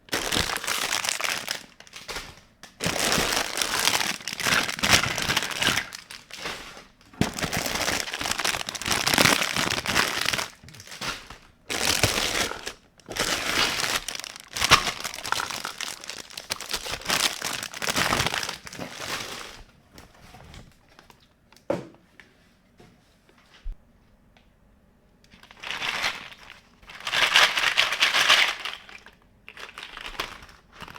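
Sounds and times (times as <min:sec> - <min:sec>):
crinkling packaging: 0:00.0 - 0:19.7, 0:25.3 - 0:30.9.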